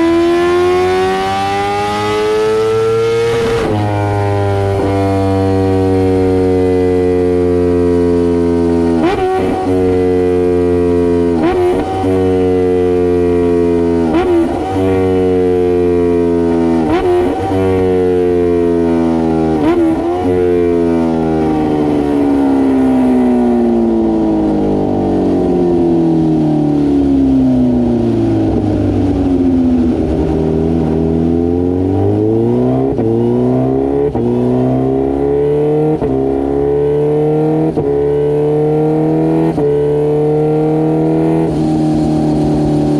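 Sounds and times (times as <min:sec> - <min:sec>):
motorcycle engine running hard: 0:00.0 - 0:42.9.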